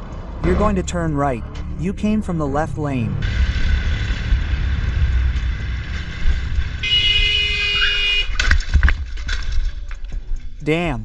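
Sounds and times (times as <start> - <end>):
motorcycle riding: 0.0 - 9.9
road and wind noise: 0.0 - 11.0
vehicle horn: 6.6 - 8.4.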